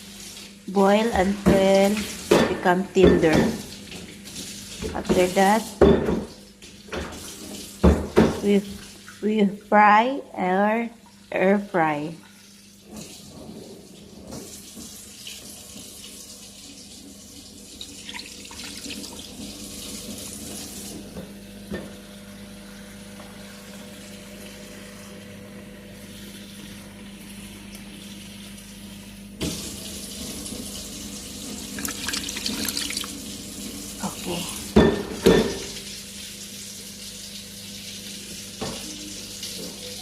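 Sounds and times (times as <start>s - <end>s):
tap water running into sink: 0.0s - 9.3s, 12.2s - 22.0s, 29.4s - 34.0s, 34.6s - 40.0s.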